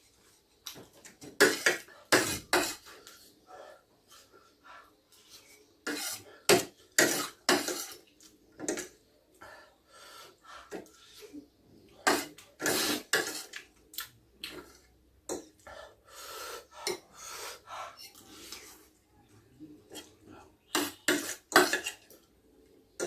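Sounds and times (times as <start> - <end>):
cutlery clinking on dishes: 5.9 - 8.0, 19.9 - 22.2.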